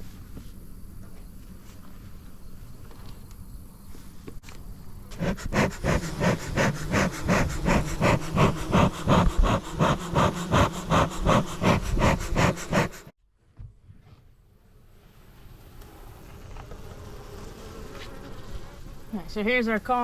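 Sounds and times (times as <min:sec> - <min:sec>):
bellows puffing whooshes: 0:05.1 - 0:13.1.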